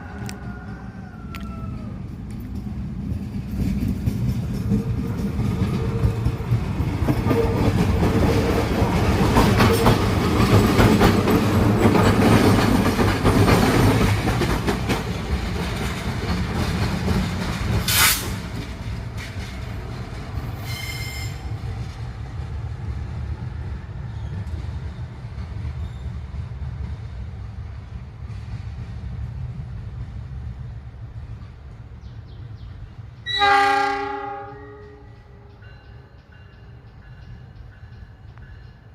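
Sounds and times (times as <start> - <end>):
train rumbling past: 0.0 - 38.9
wheels clicking over rail joints: 2.0 - 22.6
high ringing squeal: 20.6 - 21.5.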